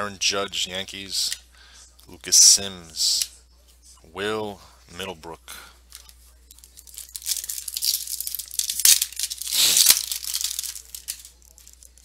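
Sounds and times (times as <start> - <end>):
foil wrapper tearing and crinkling: 6.0 - 12.0.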